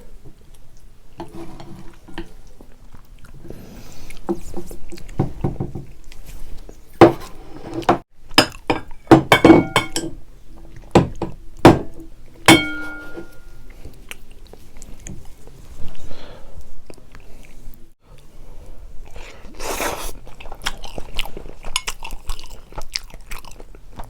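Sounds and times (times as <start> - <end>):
utensils clinking against dishes: 8.4 - 10.2, 12.4 - 13.6.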